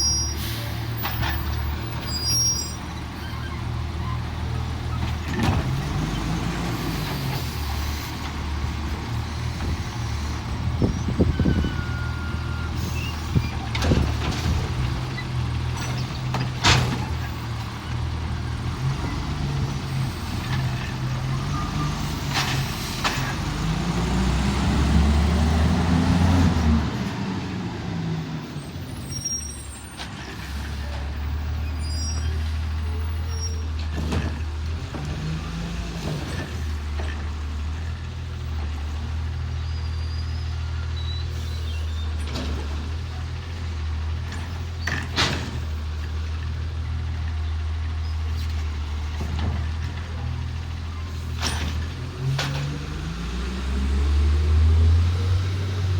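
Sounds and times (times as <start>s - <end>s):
truck diesel engine revving: 0.0s - 29.2s, 42.5s - 55.9s.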